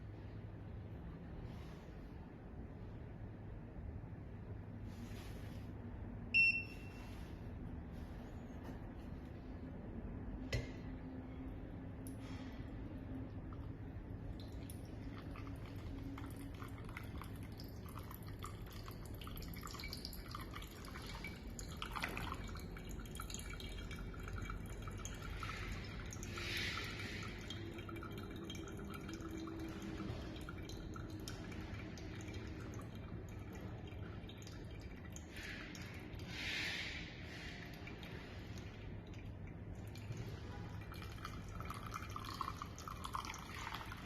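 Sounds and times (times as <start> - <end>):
coffee dripping: 11.9 - 44.0
rush of liquid: 25.3 - 27.4, 35.3 - 38.7.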